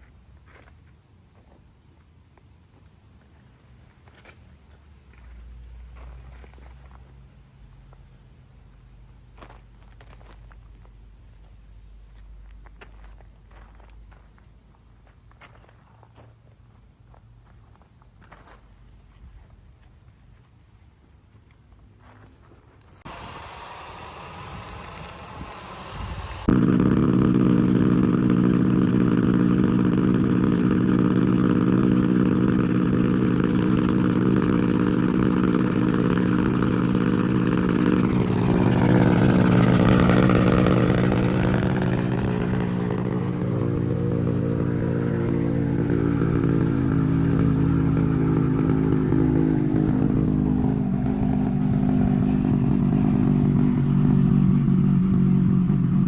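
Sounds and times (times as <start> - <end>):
motorcycle engine idling: 23.0 - 56.0.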